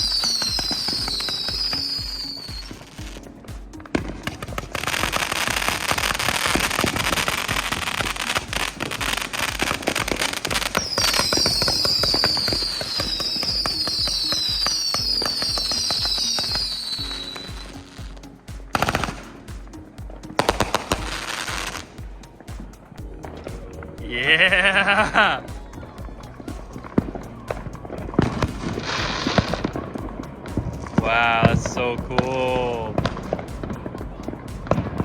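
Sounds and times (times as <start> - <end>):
falling firework whistles: 0.0 - 3.2, 4.7 - 18.0
firework bangs: 0.0 - 22.8
fireworks crackling: 0.0 - 35.0.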